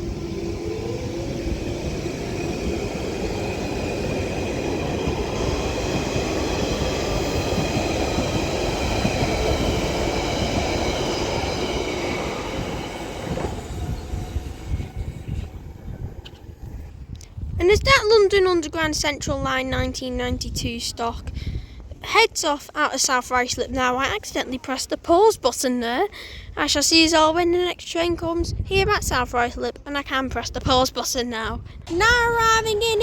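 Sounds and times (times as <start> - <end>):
train motors whining: 0.0 - 16.9
wheel and rail noise: 0.0 - 17.3.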